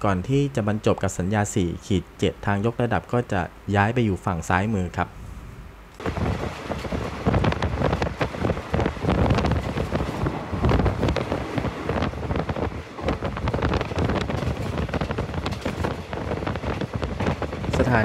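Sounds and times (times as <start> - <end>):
train carriage running noise: 5.1 - 18.0
knocks and rattles: 6.0 - 18.0
wind buffeting microphone: 6.0 - 18.0.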